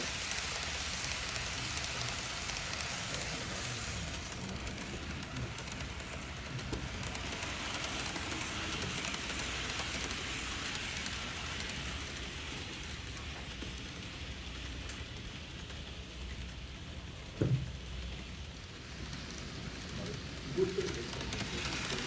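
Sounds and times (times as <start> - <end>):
model train wheels rattling on rails: 0.0 - 22.0.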